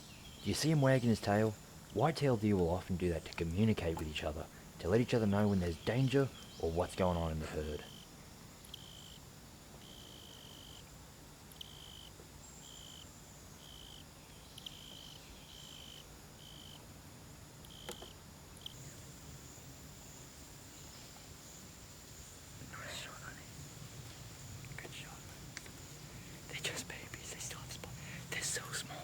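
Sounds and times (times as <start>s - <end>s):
insect trills: 0.0s - 29.0s.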